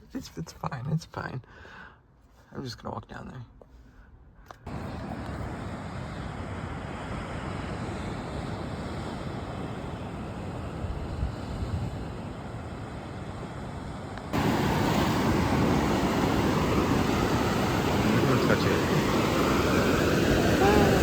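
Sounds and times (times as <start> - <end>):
wind on microphone: 4.7 - 13.6
surf washing in: 4.7 - 21.0.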